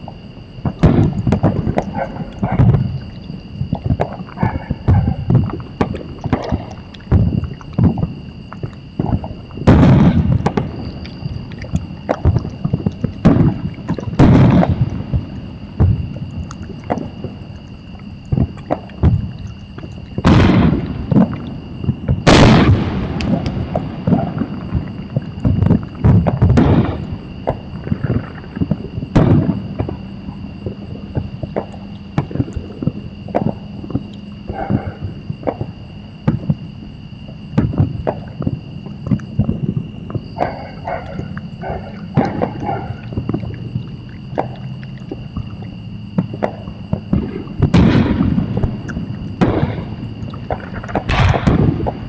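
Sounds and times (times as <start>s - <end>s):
fireworks booming bangs: 0.0s - 17.5s, 18.3s - 36.8s, 37.5s - 44.6s, 46.2s - 52.0s
fireworks popping and crackling: 0.6s - 17.4s, 18.2s - 34.2s, 37.5s - 40.2s, 46.2s - 52.0s.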